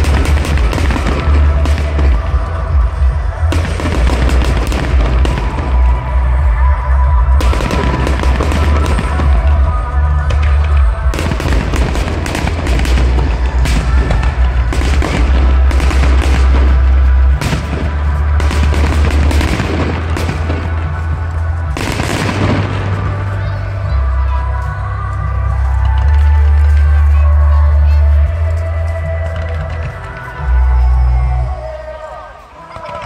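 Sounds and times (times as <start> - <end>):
fireworks bangs and crackling: 0.0 - 33.0
loud music with heavy bass: 0.0 - 33.0.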